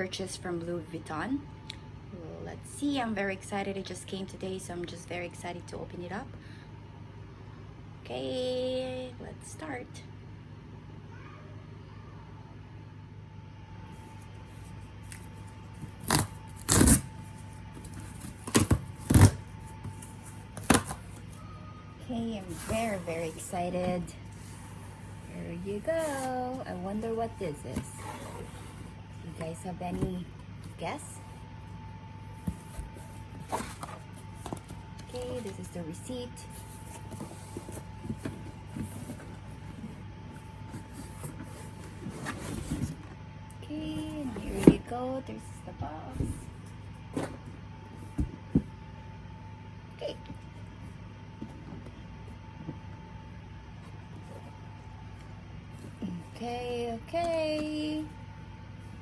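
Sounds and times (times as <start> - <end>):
steady low hum: 0.0 - 59.0
paper and cardboard rustling: 13.9 - 21.5, 22.2 - 43.1
packaging tearing and rustling: 15.2 - 17.2.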